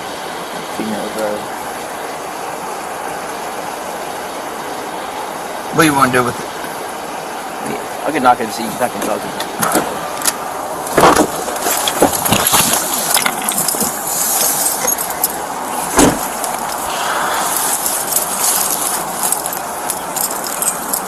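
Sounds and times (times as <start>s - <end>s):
gear rustling and jangling: 11.2s - 21.0s.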